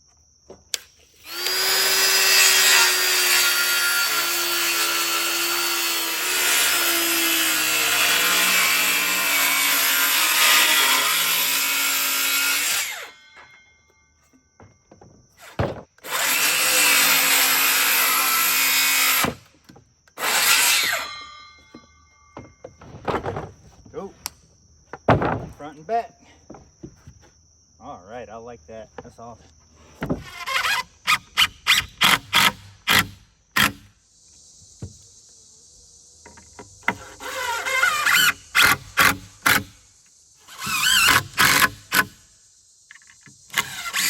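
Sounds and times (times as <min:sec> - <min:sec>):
circular saw cutting wood: 0:01.2 - 0:13.6, 0:15.4 - 0:19.4, 0:20.1 - 0:21.9, 0:30.2 - 0:33.8, 0:36.2 - 0:39.8, 0:40.4 - 0:42.3, 0:43.5 - 0:44.0.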